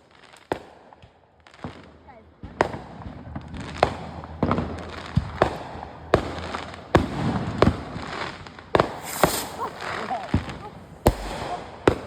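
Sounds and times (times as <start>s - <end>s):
fireworks bangs: 1.6s - 12.0s
low crackle: 3.1s - 12.0s.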